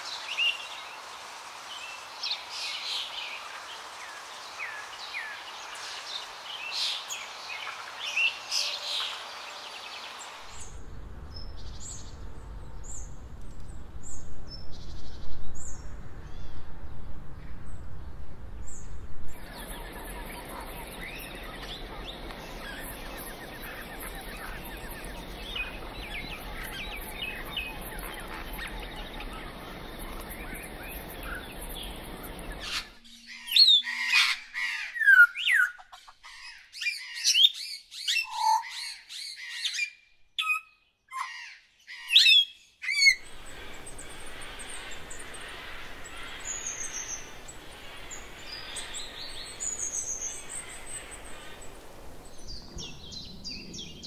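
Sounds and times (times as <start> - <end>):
birds chirping faintly: 0.0 - 41.0, 42.1 - 54.0
outdoor ambience: 0.0 - 54.0
loud bird calls: 19.4 - 54.0.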